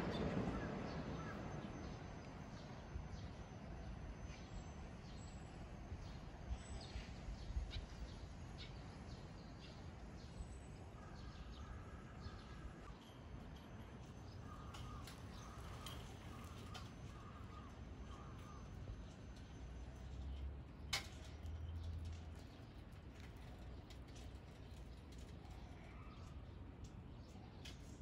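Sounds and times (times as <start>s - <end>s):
passing train: 0.0s - 6.4s.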